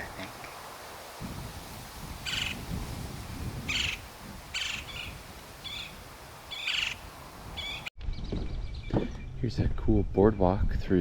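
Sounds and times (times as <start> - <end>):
bird calling: 2.2 - 2.6, 3.7 - 7.9.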